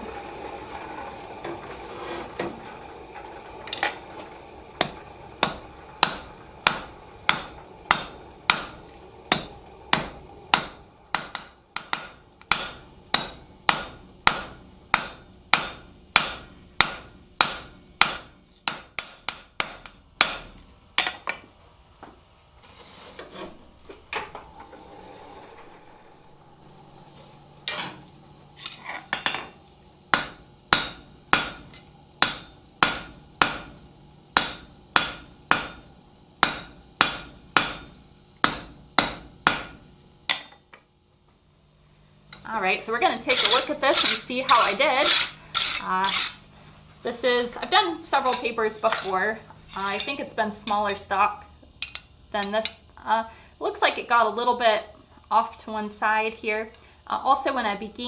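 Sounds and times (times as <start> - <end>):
hammer striking steel on anvil: 4.8 - 21.4, 28.6 - 33.8, 34.4 - 40.6, 43.3 - 46.4.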